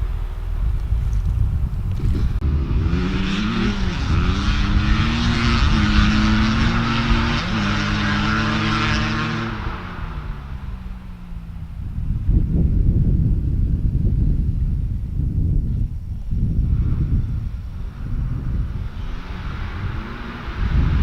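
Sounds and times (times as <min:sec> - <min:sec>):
wind rumble on microphone: 0:00.0 - 0:21.0
small off-road engine revving: 0:00.9 - 0:21.0.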